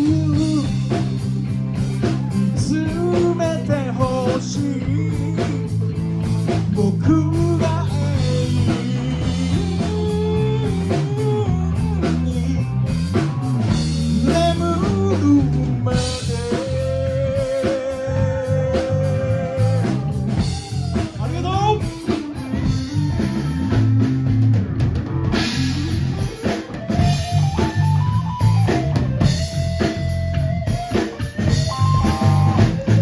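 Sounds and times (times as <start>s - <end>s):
person singing: 0.0s - 1.0s, 2.2s - 5.9s, 6.7s - 24.1s
bass guitar: 0.0s - 33.0s
drums: 0.0s - 33.0s
electric guitar: 0.0s - 33.0s.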